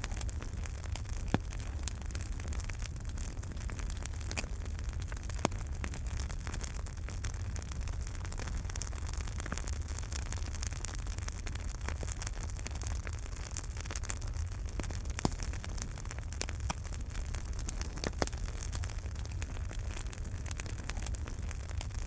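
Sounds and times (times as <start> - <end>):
logs crackling and popping: 0.0 - 22.0
low rumble of fire: 0.0 - 22.0.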